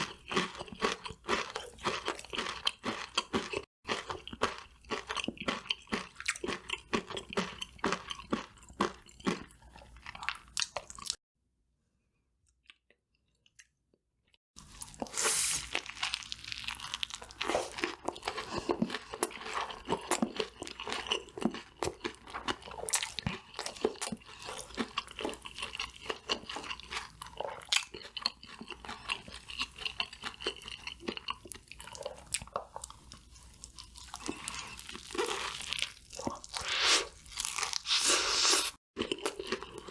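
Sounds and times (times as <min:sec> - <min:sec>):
chewing and crunching crispy food: 0:00.0 - 0:11.2, 0:12.4 - 0:39.9.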